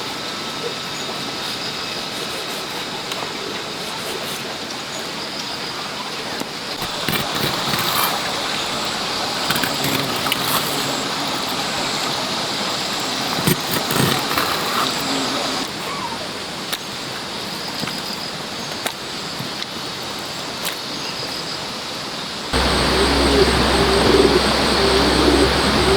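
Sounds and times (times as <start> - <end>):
running water: 6.5 - 18.5, 22.6 - 25.9.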